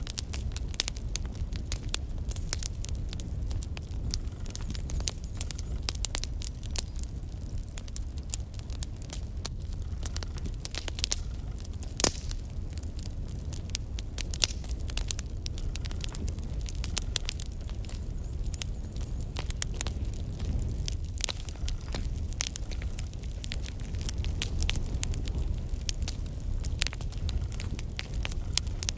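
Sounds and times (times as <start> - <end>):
logs crackling in fireplace: 0.0 - 28.9
low rumble of flames: 0.0 - 28.9
sharp pops of burning logs: 0.0 - 28.9.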